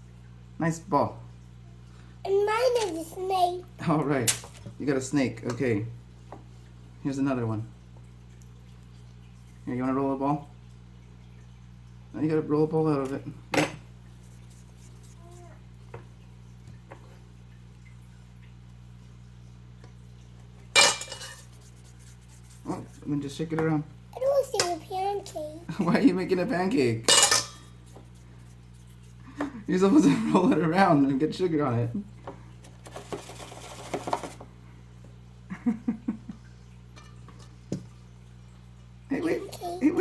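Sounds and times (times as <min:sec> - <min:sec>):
steady low hum: 0:00.0 - 0:24.2, 0:24.8 - 0:32.8
kitchen things clicking and tapping: 0:20.8 - 0:21.5, 0:32.2 - 0:34.5
dough rattling in sugar: 0:32.8 - 0:34.4.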